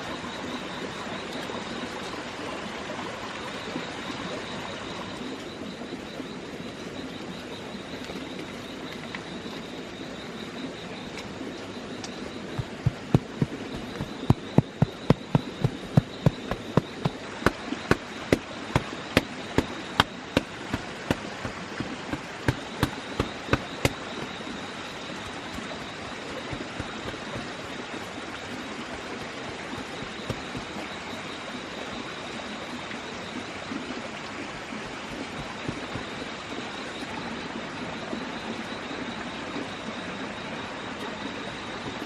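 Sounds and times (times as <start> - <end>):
bush knife chopping wood: 12.4 - 24.4, 25.1 - 28.2, 28.9 - 30.9.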